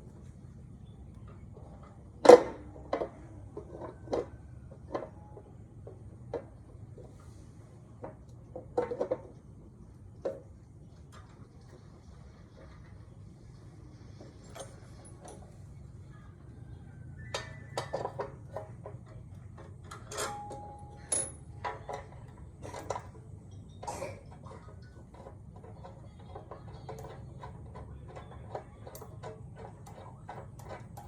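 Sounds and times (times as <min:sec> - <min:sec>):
metal tools clinking and knocking: 0:08.0 - 0:09.4, 0:13.9 - 0:16.1, 0:17.0 - 0:31.0.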